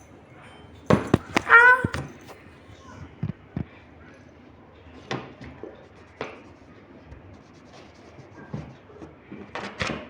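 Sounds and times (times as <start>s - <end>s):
faint scratching and rustling: 0.9s - 9.8s.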